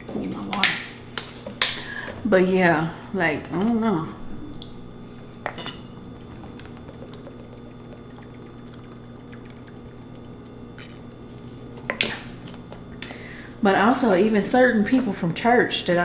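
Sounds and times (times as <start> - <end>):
steady low hum: 0.0 - 16.0
liquid sounds of drinking: 6.0 - 12.6.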